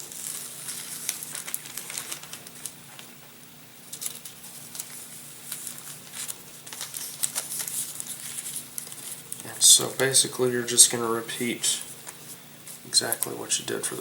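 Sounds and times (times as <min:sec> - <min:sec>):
plastic film crinkling: 0:00.0 - 0:03.2, 0:03.8 - 0:10.8.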